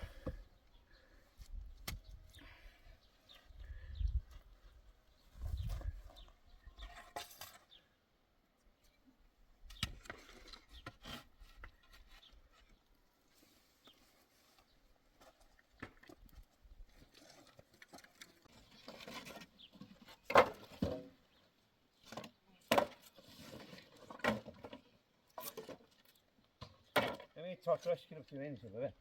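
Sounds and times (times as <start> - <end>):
objects knocking and scraping: 22.0 - 26.0.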